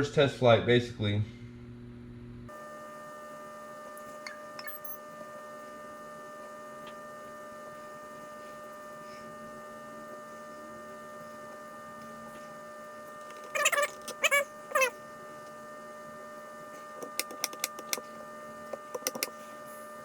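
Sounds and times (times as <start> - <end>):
electrical hum: 1.4 - 20.0
faint clicks: 18.8 - 19.3.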